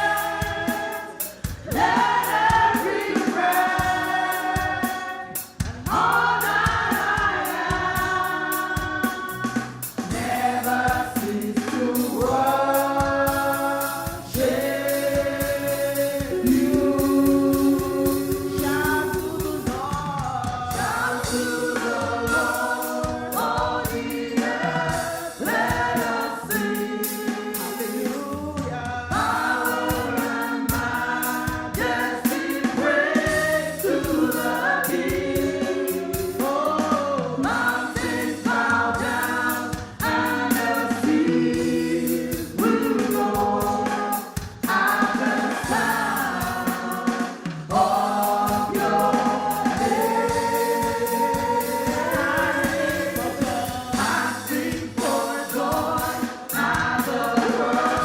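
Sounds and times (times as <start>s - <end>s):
band with drums: 0.0s - 58.0s
choir singing gospel: 0.0s - 58.0s.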